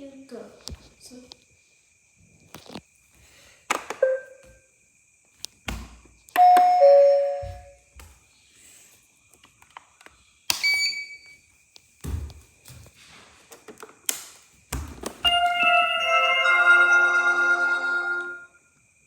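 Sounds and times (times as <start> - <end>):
robot vacuum start-up chime: 15.3 - 18.6.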